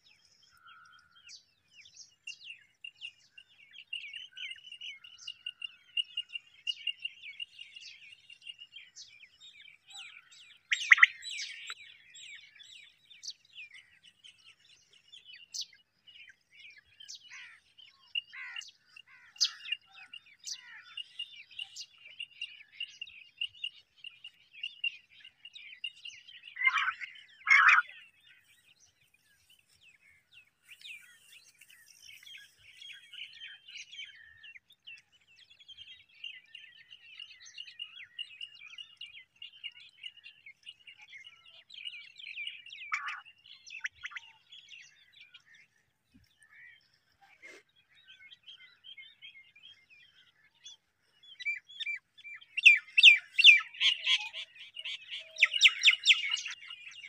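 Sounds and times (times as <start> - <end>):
small birds chirping: 0.0 - 57.0
louder bird calls: 26.5 - 28.0, 52.5 - 56.6.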